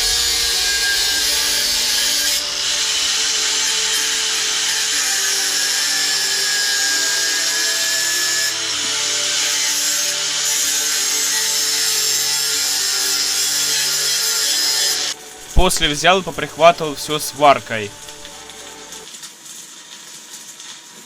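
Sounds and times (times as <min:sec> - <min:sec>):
power tool grinding metal: 0:00.0 - 0:16.7.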